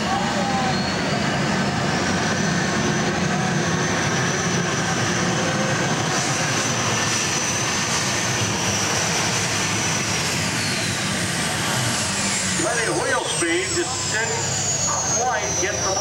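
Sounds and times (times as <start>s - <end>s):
tractor engine at full power: 0.0s - 16.0s.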